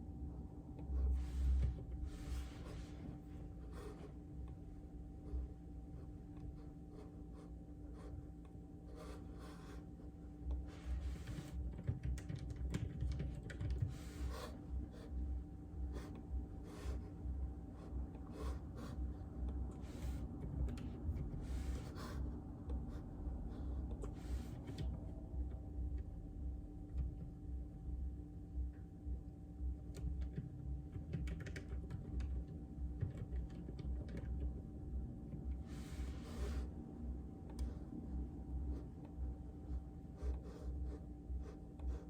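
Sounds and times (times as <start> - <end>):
mechanical keyboard typing: 11.7 - 13.9, 30.0 - 34.6.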